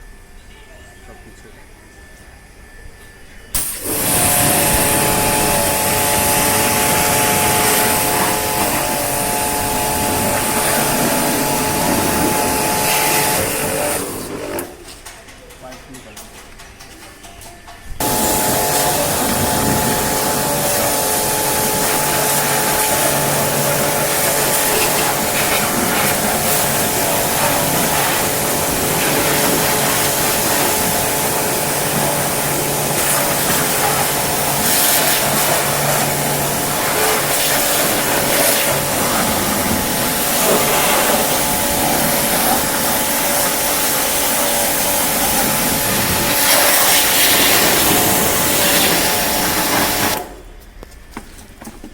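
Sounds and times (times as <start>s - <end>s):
pressure washer motor humming: 3.6s - 14.8s, 18.0s - 50.4s
pressure washer water jet hissing: 3.6s - 14.8s, 18.0s - 50.4s.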